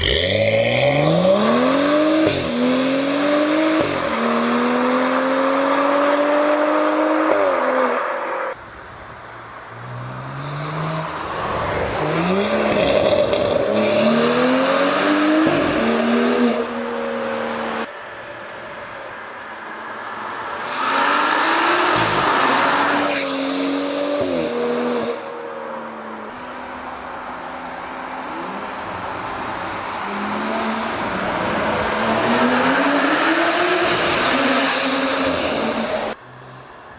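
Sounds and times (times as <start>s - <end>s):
car engine revving hard: 0.0s - 8.0s, 9.8s - 17.9s, 20.6s - 25.3s, 30.0s - 36.2s.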